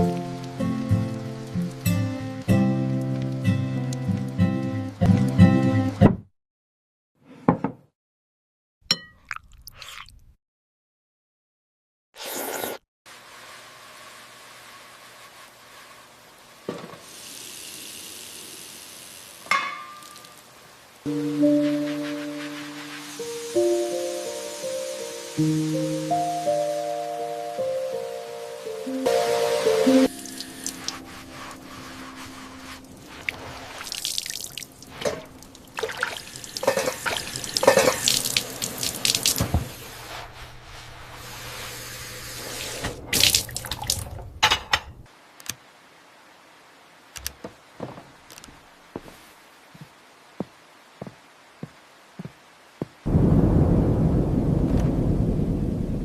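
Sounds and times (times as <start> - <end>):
music: 0.0 - 6.1, 21.1 - 33.4
dish clinking: 19.5 - 20.3, 36.6 - 38.1
tap water running into sink: 33.2 - 39.8, 42.6 - 44.1.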